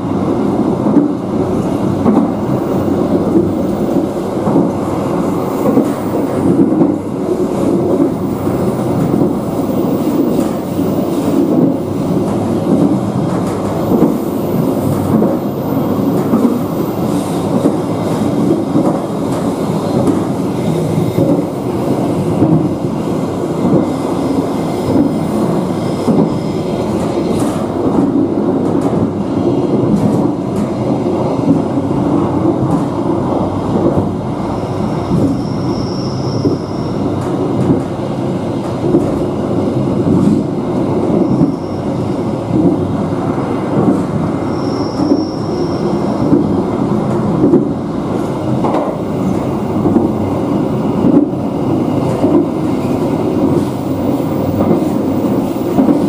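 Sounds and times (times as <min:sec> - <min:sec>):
train wheels clattering on rails: 0:00.2 - 0:56.0
faint high wheel squeal: 0:34.7 - 0:37.1, 0:41.2 - 0:41.9, 0:44.5 - 0:46.5.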